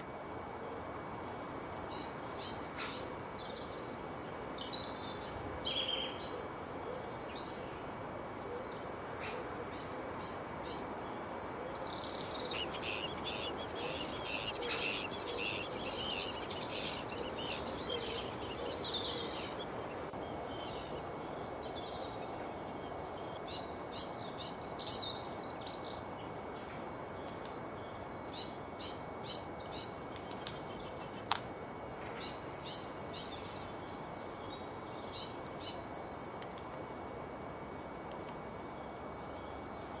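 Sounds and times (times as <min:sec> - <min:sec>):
steady background hiss: 0:00.0 - 0:40.0
birds singing and chirping: 0:12.0 - 0:21.1
high rapid bird chirps: 0:12.3 - 0:20.1.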